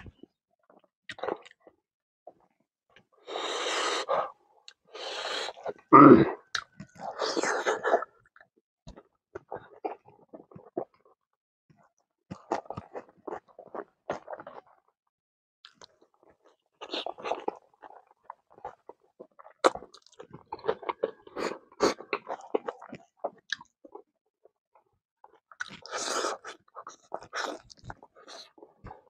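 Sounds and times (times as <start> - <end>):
person chewing with mouth clicks: 4.6 - 11.0, 16.8 - 24.0, 25.3 - 29.0.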